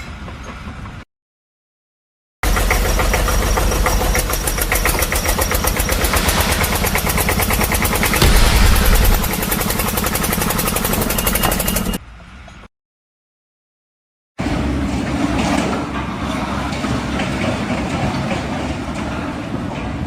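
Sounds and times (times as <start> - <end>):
engine running with knocking beat: 2.4 - 12.0.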